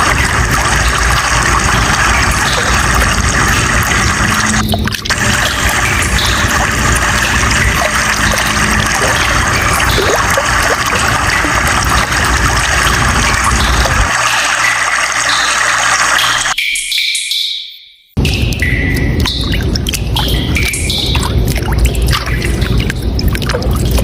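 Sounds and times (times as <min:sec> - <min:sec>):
water running: 0:00.0 - 0:16.6, 0:18.2 - 0:24.0.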